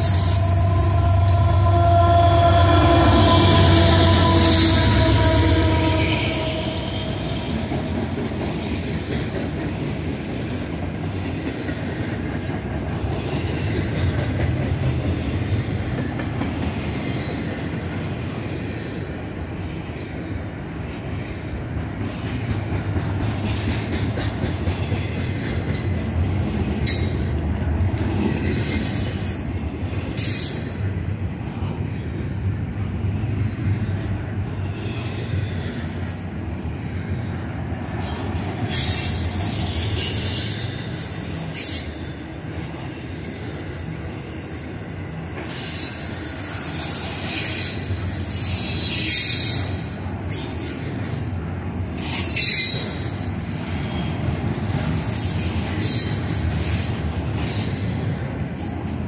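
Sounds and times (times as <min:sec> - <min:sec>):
high-pitched wheel squeal: 0:00.0 - 0:07.9
train wheels rumbling on rail: 0:00.0 - 0:59.0.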